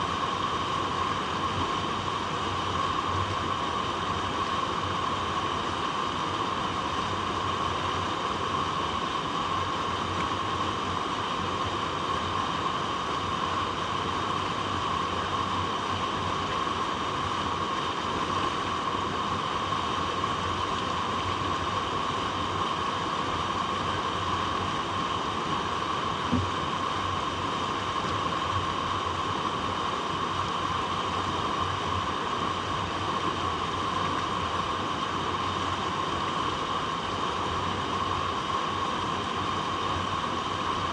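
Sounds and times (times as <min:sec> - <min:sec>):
water flowing over rocks: 0:00.0 - 0:40.9
soft thump: 0:26.3 - 0:26.5.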